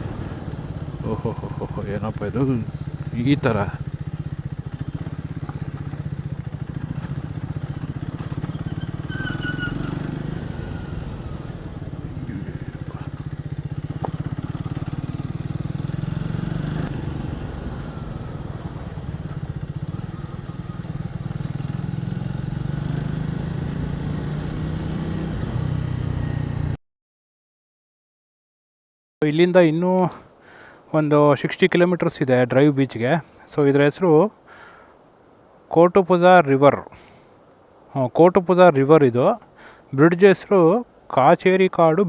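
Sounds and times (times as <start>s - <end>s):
motorcycle engine rumbling: 0.0s - 26.8s.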